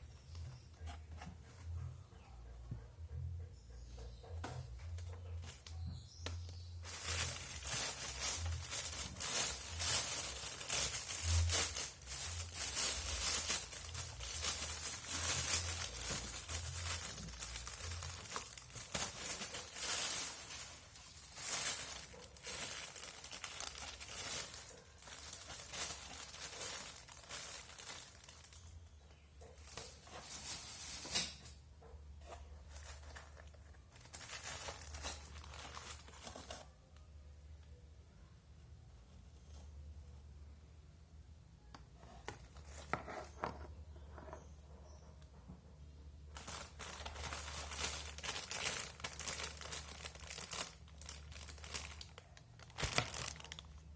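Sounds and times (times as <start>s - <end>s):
packaging crinkling and rustling: 4.9s - 31.3s, 32.3s - 36.8s, 46.3s - 53.9s.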